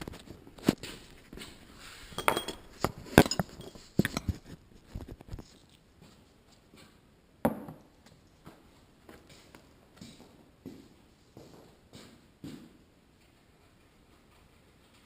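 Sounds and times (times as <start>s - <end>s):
metal tools clinking and knocking: 2.2s - 4.4s.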